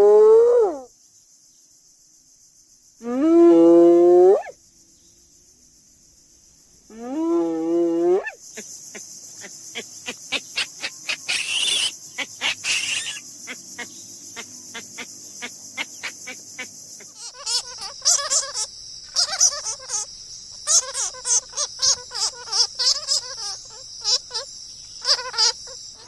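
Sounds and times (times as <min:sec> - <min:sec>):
wavering animal call: 0:00.0 - 0:00.9, 0:03.0 - 0:04.6, 0:06.9 - 0:08.4, 0:10.1 - 0:13.6, 0:17.0 - 0:26.0
high-pitched insect chorus: 0:00.0 - 0:26.0
short rasping calls: 0:08.2 - 0:26.0.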